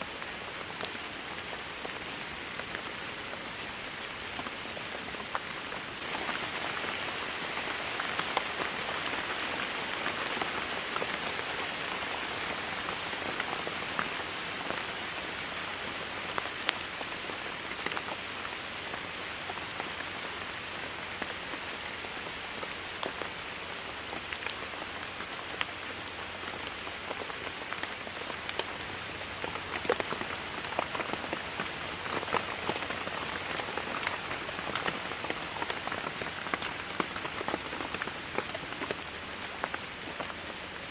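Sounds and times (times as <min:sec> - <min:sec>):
steady rainfall: 0:00.0 - 0:40.9
raindrops ticking: 0:23.9 - 0:40.4.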